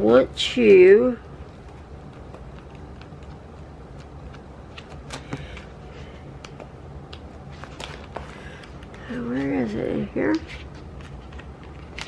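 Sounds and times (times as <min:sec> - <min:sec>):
steady low hum: 0:00.0 - 0:12.0
paper rustling: 0:07.5 - 0:09.5, 0:10.3 - 0:12.0.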